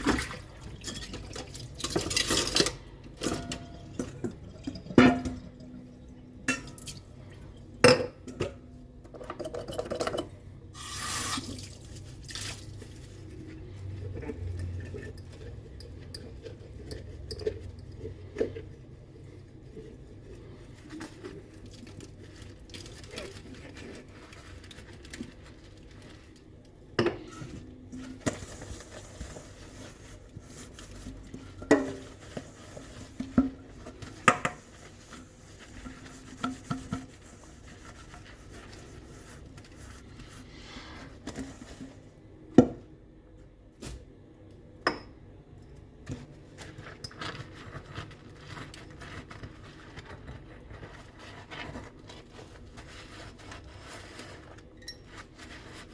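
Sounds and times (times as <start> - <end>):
soft rubbing and handling: 10.4 - 44.4, 45.6 - 55.9.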